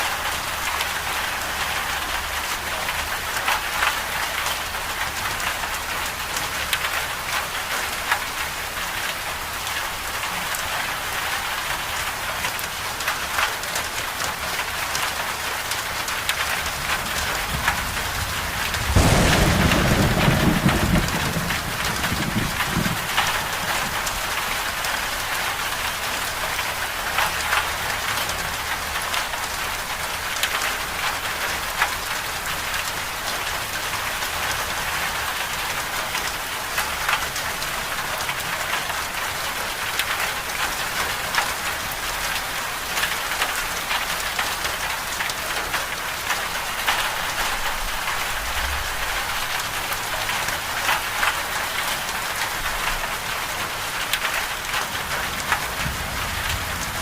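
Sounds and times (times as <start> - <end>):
rain hiss: 0.0 - 57.0
raindrops ticking: 11.6 - 57.0.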